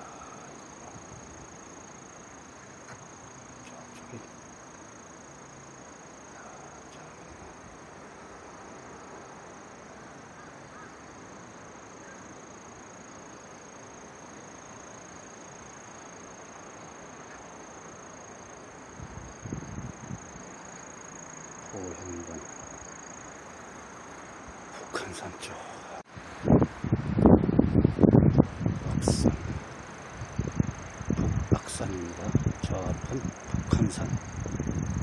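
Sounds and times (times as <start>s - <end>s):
insects trilling: 0.0s - 35.0s
low outdoor hiss: 0.0s - 35.0s.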